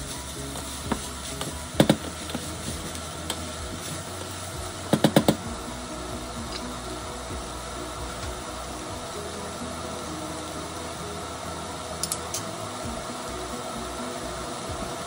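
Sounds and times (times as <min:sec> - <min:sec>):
spatula stirring frying rice: 0:00.0 - 0:11.4
light sizzle: 0:00.0 - 0:15.0.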